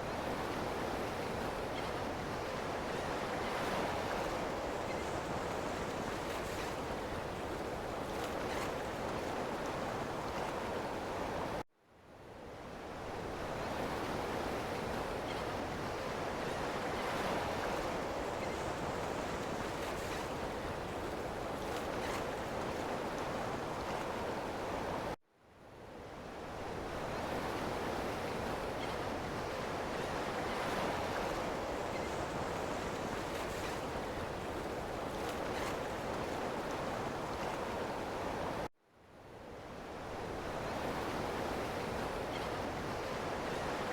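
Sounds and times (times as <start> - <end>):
ocean surf washing on shore: 26.6 - 38.7.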